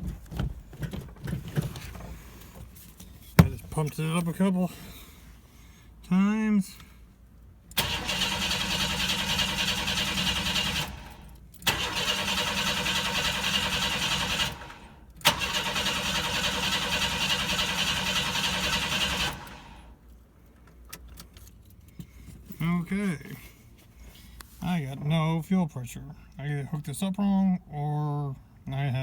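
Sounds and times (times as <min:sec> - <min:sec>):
starter cranking engine: 0:07.7 - 0:19.8.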